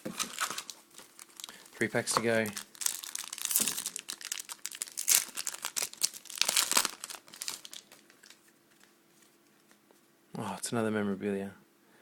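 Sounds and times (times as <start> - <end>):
wrapper tearing and crinkling: 0.2 - 8.9.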